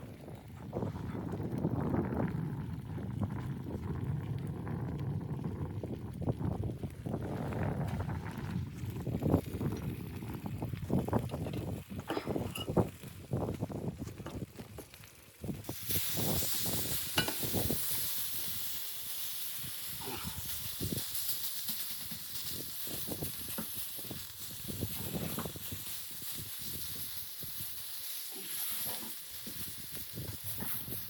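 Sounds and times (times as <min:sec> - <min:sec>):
steady hiss: 0:15.6 - 0:31.0.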